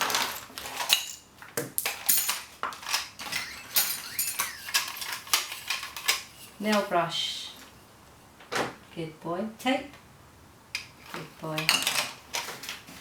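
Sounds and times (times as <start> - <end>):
whistle-like tone: 3.2 - 5.3
objects clattering on hard surface: 11.0 - 13.0.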